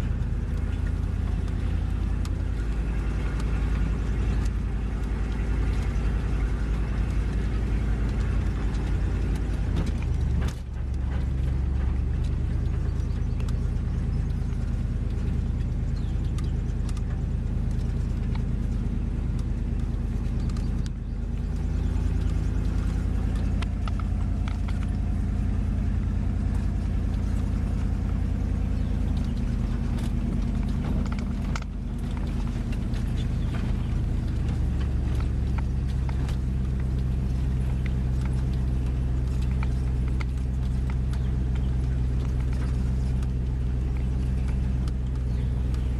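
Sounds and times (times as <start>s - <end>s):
truck engine droning: 0.0s - 45.9s.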